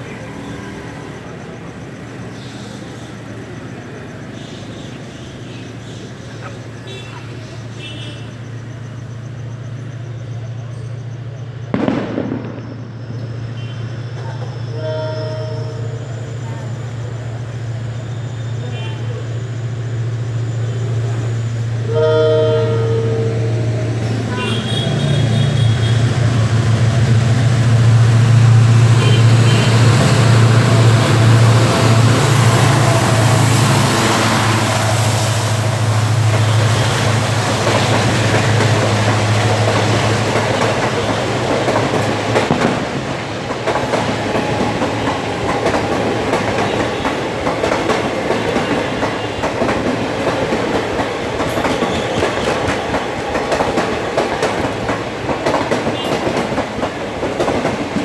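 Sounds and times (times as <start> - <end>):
diesel locomotive engine drone: 0.0 - 58.0
train wheels clattering on rails: 23.7 - 58.0.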